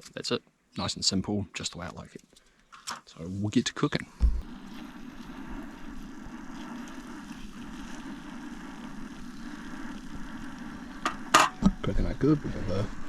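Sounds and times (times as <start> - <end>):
camp stove low rush: 2.0 - 13.0
food sizzling in a frying pan: 4.4 - 13.0.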